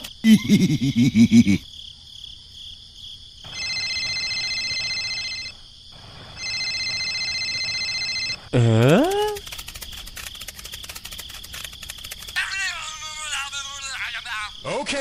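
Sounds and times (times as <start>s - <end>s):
mobile phone ringing: 3.5s - 5.5s, 6.4s - 9.4s.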